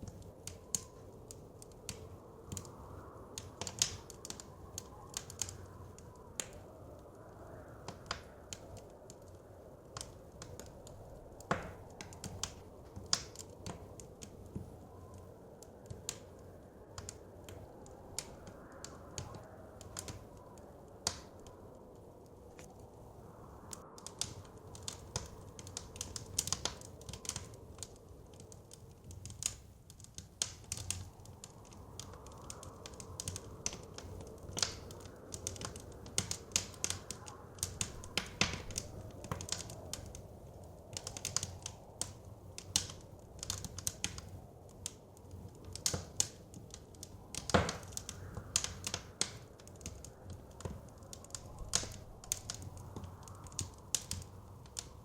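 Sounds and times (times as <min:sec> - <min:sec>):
blizzard wind: 0:00.0 - 0:55.0
wood fire crackling: 0:00.0 - 0:55.0.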